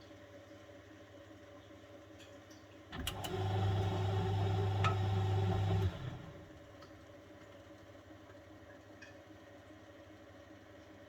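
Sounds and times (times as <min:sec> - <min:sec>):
washing machine motor hum: 0:02.9 - 0:06.8.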